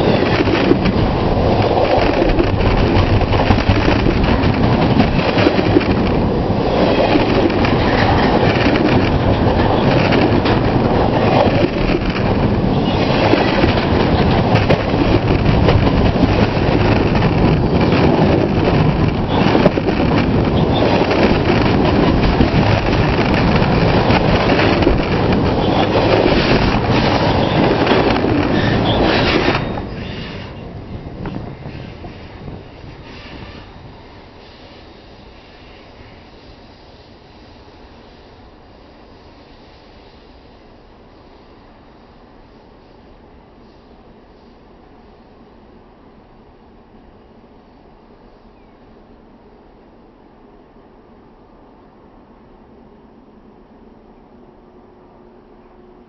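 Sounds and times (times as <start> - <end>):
train cars rumbling and clattering: 0.0 - 36.5.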